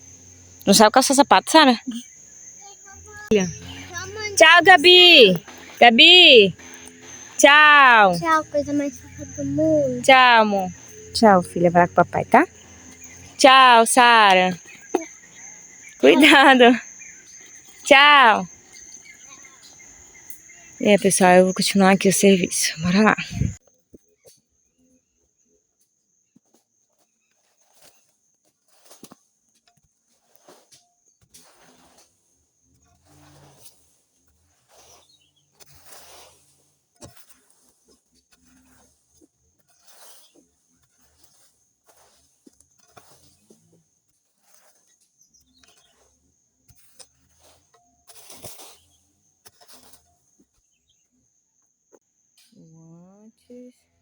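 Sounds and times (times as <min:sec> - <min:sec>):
high insect drone: 0:00.0 - 0:23.6
steady high tone: 0:03.3 - 0:06.6, 0:07.3 - 0:12.5, 0:13.3 - 0:15.1, 0:16.0 - 0:16.8.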